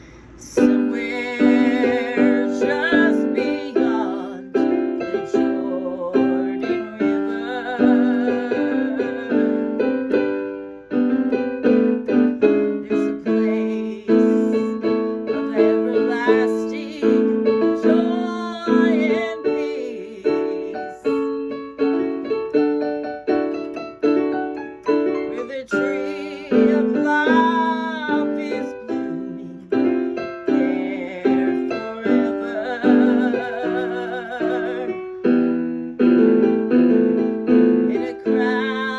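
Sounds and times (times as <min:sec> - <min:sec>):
keyboard playing chords: 0:00.6 - 0:17.8, 0:18.4 - 0:27.6, 0:28.2 - 0:38.4.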